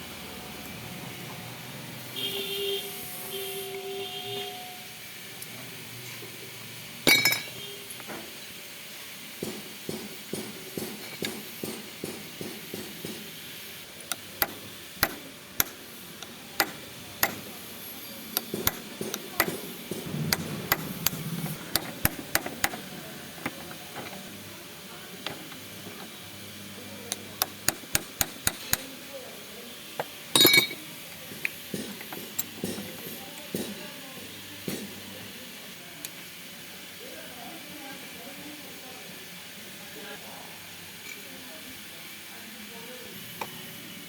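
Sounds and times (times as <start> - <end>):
hammer striking metal: 7.1 - 7.6, 18.5 - 22.8, 30.4 - 30.8
metallic clinks and taps: 7.1 - 7.6, 30.4 - 30.8.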